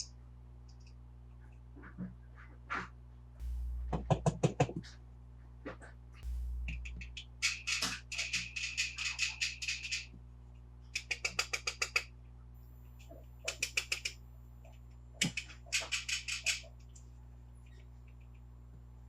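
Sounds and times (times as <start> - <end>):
plastic toy cars clicking and rattling: 15.2 - 17.0.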